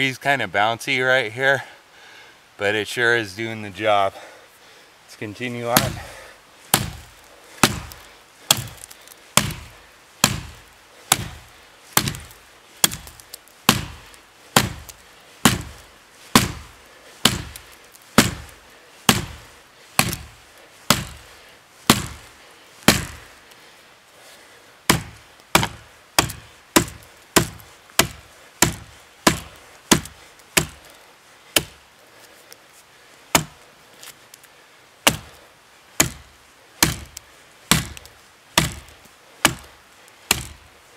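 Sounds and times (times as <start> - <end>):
axe chopping into wood: 5.7 - 6.1, 6.7 - 18.5, 19.1 - 21.3, 21.9 - 22.3, 22.9 - 23.3, 24.9 - 30.8, 31.6 - 31.8, 33.3 - 33.6, 35.0 - 35.4, 36.0 - 39.7, 40.3 - 40.6.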